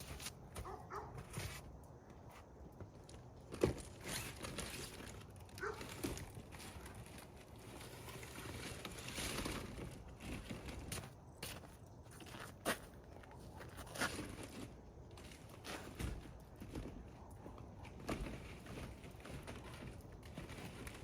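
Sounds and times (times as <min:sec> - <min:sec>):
footsteps crunching in snow: 0:00.0 - 0:01.7, 0:06.8 - 0:14.8.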